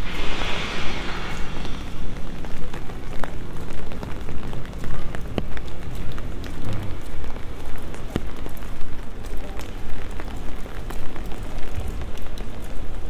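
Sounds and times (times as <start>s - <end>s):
rain on paving stones: 3.0s - 13.0s.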